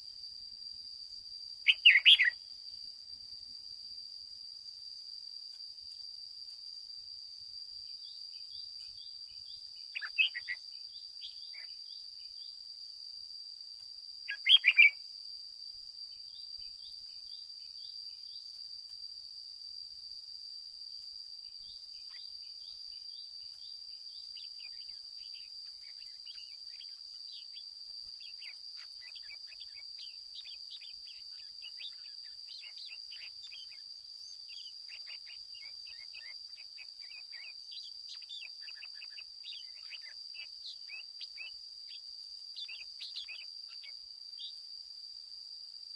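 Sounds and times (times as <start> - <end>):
high-pitched insect buzz: 0.0 - 45.9
bird call phrases: 1.7 - 2.4, 9.8 - 10.6, 14.3 - 15.0, 24.3 - 41.5, 42.6 - 44.5
fast faint chirps: 24.2 - 43.9.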